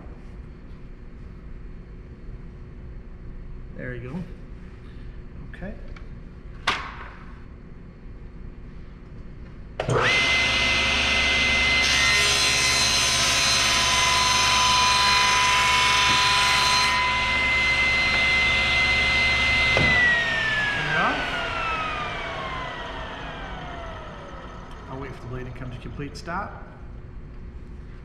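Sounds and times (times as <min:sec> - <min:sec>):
table saw whining: 0:09.8 - 0:26.0
saw blade cutting wood: 0:09.9 - 0:25.0.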